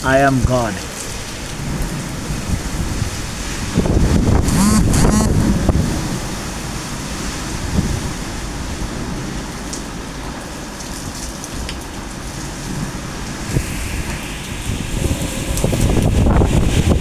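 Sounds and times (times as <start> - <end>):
heavy rain: 0.0 - 4.4, 5.5 - 17.0
hurricane wind: 0.0 - 4.5, 5.3 - 17.0
wind buffeting microphone: 1.2 - 4.6, 12.4 - 17.0.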